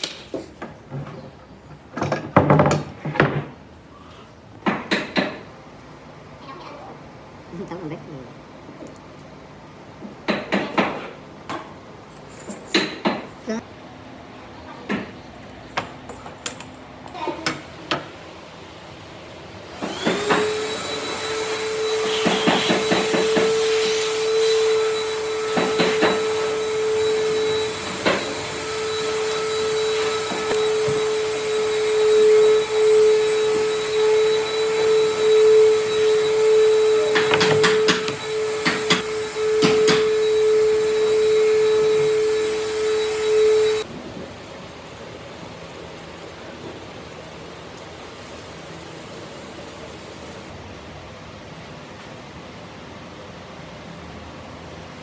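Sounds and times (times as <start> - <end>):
knocks and taps: 37.2 - 40.0.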